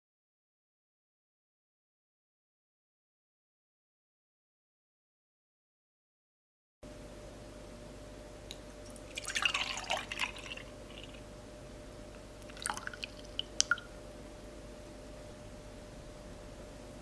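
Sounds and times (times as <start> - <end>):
liquid pouring and splashing: 8.8 - 11.2, 12.4 - 13.9
light drips and clicks: 12.1 - 13.9.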